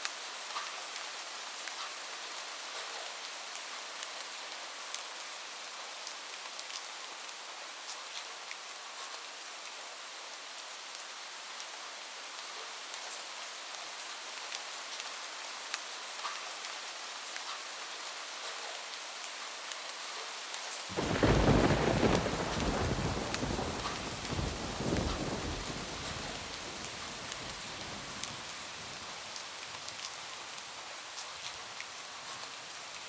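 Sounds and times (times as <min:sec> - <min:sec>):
rain on a roof: 0:00.0 - 0:33.0
thunderclap rumbling: 0:20.9 - 0:29.1.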